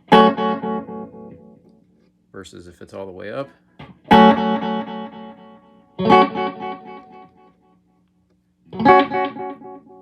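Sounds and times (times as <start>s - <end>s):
electric guitar chords with echoes: 0.0s - 1.9s, 3.8s - 7.8s, 8.6s - 10.0s.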